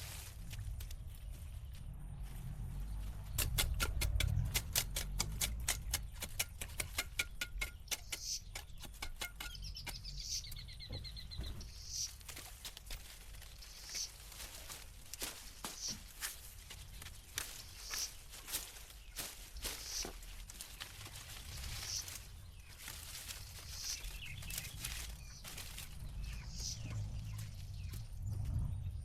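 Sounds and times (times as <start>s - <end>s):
bird chirps and trills: 2.8s - 29.0s
sharp clicks and taps: 3.4s - 10.1s.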